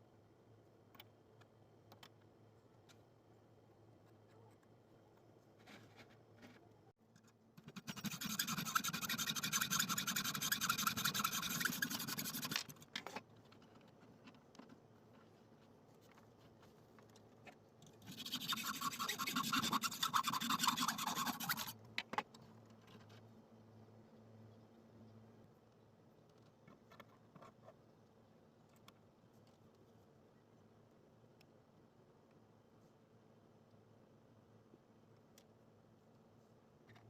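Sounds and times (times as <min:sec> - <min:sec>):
abrasive tool scraping metal: 0:07.6 - 0:12.8.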